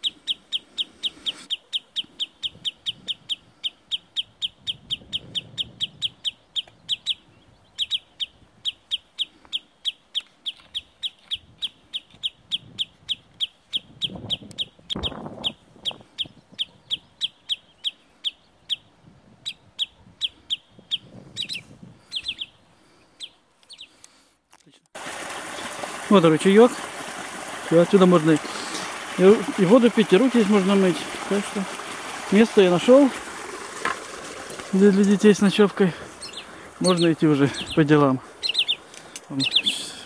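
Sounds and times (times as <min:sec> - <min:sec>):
wader bird alarm calls: 0:00.0 - 0:22.6, 0:34.8 - 0:40.0.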